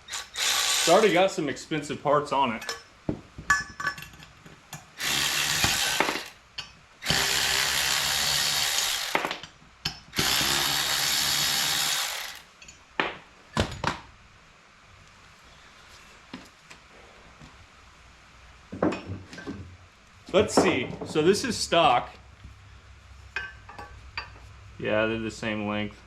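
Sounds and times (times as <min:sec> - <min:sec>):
cordless power tool spinning bolts: 0:00.0 - 0:01.3, 0:05.0 - 0:06.4, 0:07.0 - 0:09.4, 0:10.1 - 0:12.5.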